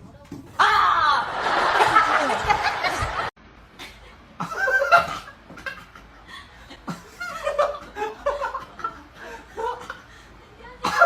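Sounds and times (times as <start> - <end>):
people laughing: 1.0 - 3.3, 4.4 - 10.2.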